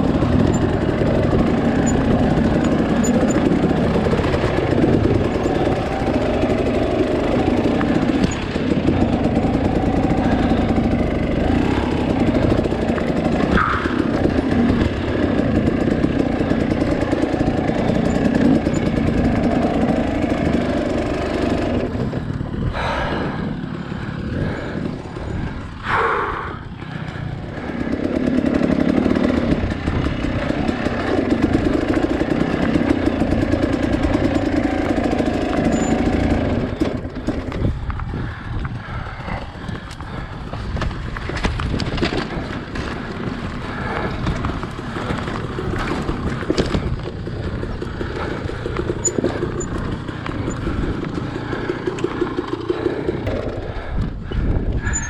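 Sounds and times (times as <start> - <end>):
dirt bike engine revving: 0.0 - 25.8, 27.2 - 55.0.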